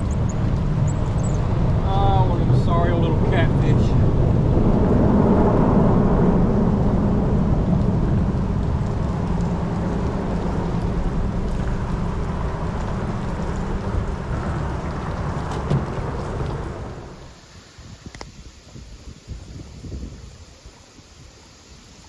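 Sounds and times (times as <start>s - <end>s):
boat motor droning: 0.0s - 17.3s
water noise: 0.0s - 22.0s
wind: 0.0s - 22.0s.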